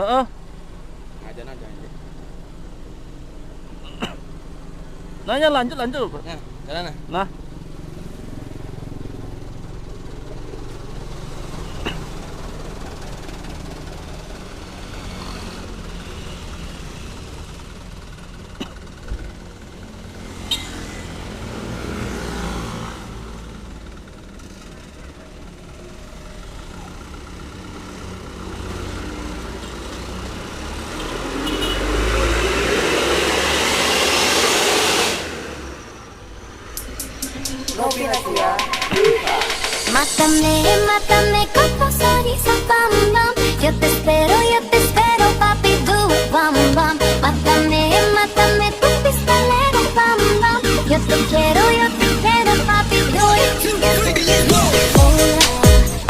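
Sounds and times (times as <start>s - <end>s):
vehicle engine and road noise: 0.0s - 56.0s
loud rushing noise: 31.8s - 42.6s.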